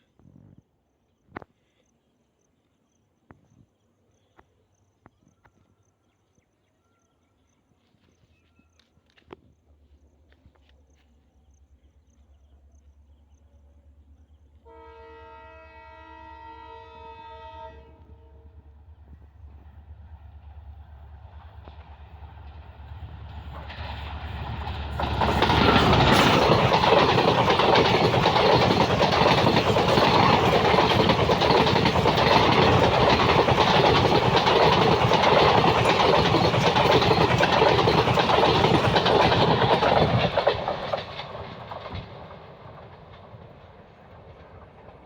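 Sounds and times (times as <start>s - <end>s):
diesel train passing: 12.6s - 45.0s
wheels clattering over rail joints: 23.5s - 43.6s.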